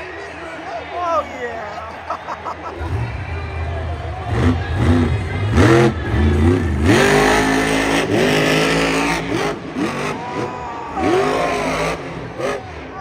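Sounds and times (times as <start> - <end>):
monster truck engine revving: 2.7 - 13.0.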